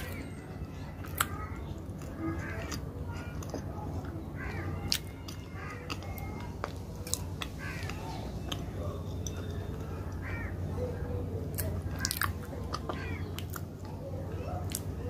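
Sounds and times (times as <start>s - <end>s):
person chewing: 0.0s - 10.3s, 11.4s - 15.0s
low steady hum: 0.0s - 15.0s.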